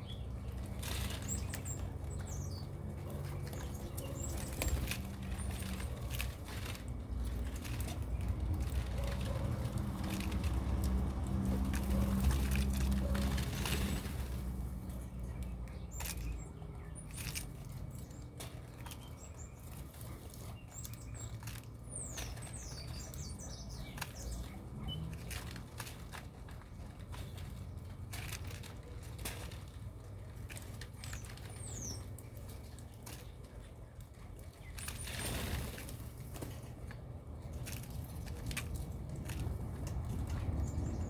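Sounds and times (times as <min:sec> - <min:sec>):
bird wing flutters and clicks: 0:34.7 - 0:41.0.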